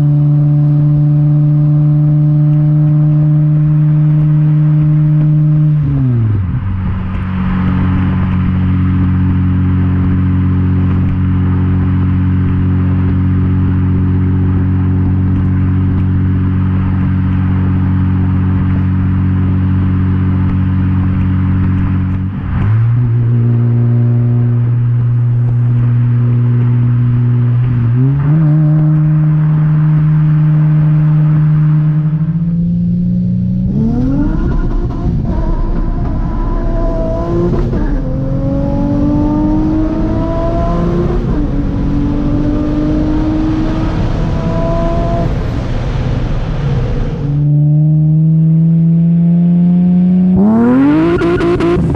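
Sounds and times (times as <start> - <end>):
car engine exhaust drone: 0.0 - 51.9.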